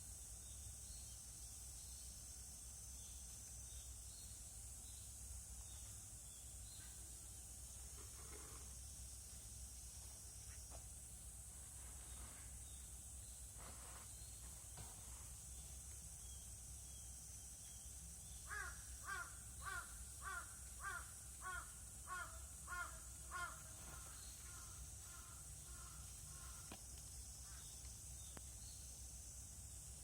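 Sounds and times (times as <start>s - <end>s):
crow cawing: 18.5s - 26.7s.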